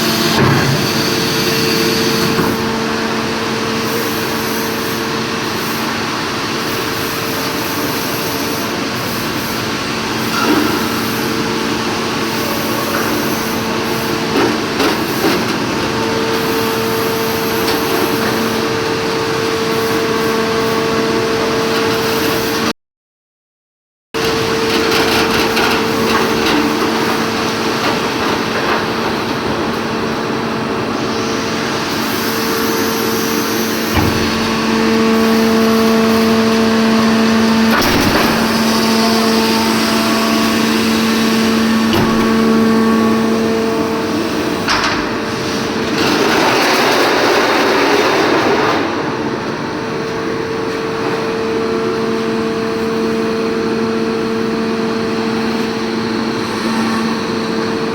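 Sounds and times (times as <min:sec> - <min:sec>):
machine noise: 0:24.2 - 0:57.9.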